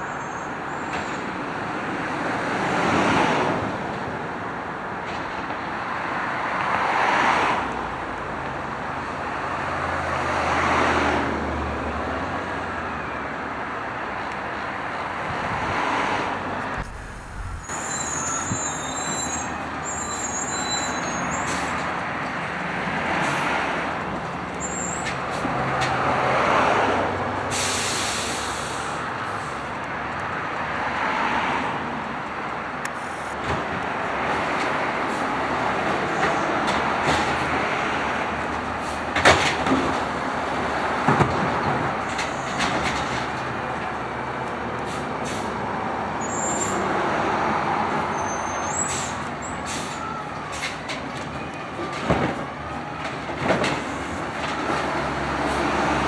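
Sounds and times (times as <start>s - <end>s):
truck engine running: 16.4s - 19.0s.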